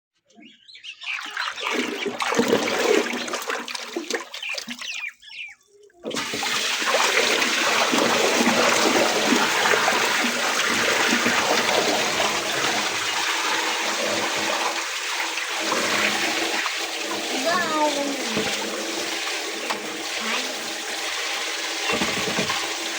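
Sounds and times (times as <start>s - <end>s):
water gurgling and splashing: 1.0s - 5.1s, 6.0s - 22.9s
water rushing: 6.0s - 22.9s.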